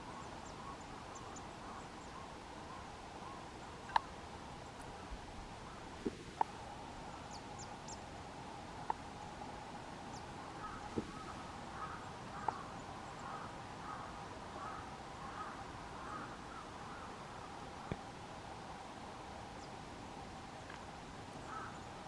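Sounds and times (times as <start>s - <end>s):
crow cawing: 10.5s - 17.5s, 21.4s - 21.9s.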